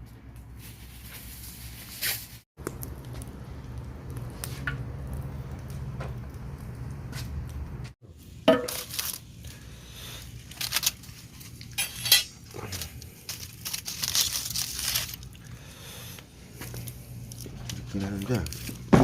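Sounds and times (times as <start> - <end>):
aluminium foil crinkling: 8.7 - 19.0.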